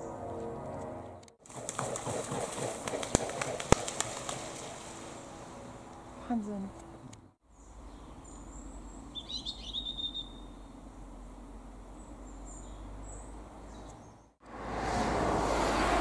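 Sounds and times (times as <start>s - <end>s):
low outdoor rumble: 0.0s - 16.0s
small bird chirping: 7.5s - 10.8s, 12.0s - 14.3s.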